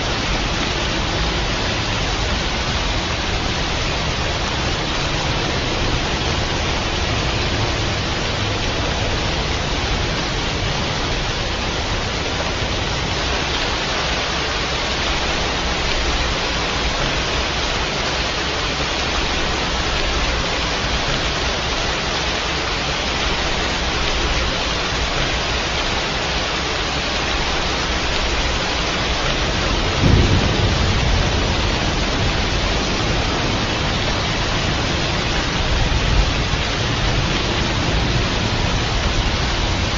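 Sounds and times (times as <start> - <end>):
dense rain falling: 0.0 - 39.9
thunder rumble: 14.8 - 21.7, 27.4 - 39.9.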